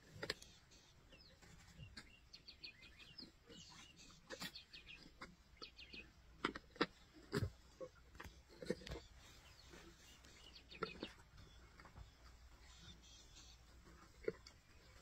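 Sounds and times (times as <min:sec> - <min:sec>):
faint small birds chirping: 0:00.0 - 0:15.0
sharp cracks of bones chewed: 0:04.2 - 0:09.1.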